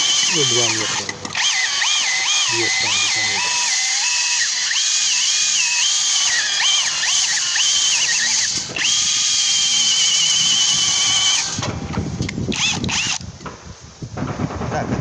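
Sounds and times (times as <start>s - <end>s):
power drill whining: 0.0s - 13.3s
knocks and rattles: 6.0s - 15.0s.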